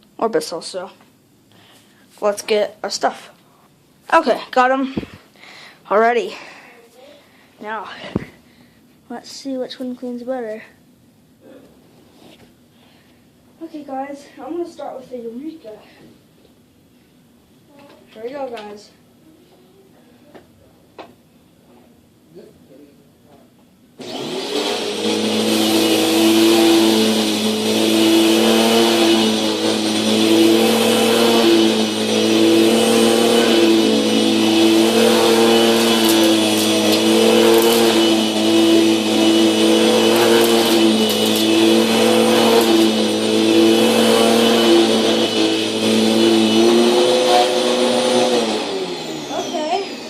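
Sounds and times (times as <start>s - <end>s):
vacuum cleaner running: 24.0s - 50.0s.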